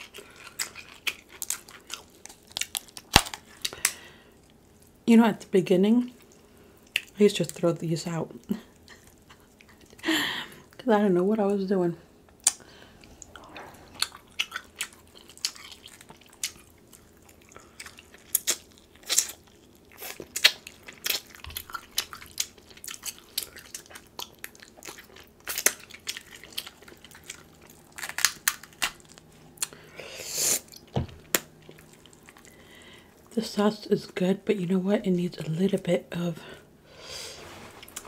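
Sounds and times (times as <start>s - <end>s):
chewing and mouth smacking: 0.0s - 5.0s, 8.4s - 10.0s, 12.3s - 29.9s, 30.7s - 33.3s.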